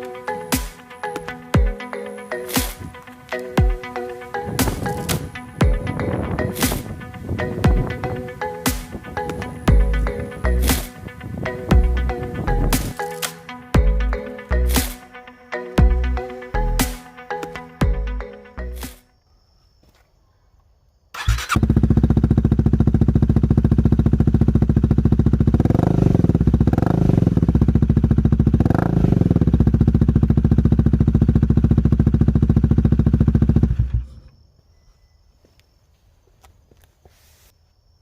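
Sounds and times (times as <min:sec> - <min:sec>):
motorcycle engine idling and revving: 0:03.6 - 0:13.1, 0:13.7 - 0:15.0, 0:21.2 - 0:34.2.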